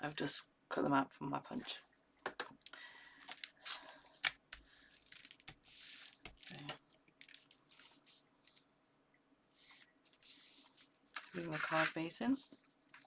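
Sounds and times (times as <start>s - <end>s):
paper rustling: 9.6s - 13.0s.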